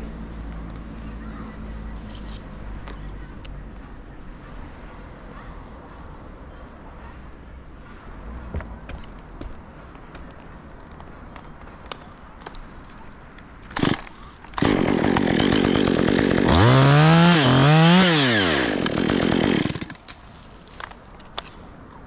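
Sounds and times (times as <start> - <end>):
chainsaw revving: 13.8 - 14.0, 14.6 - 20.0.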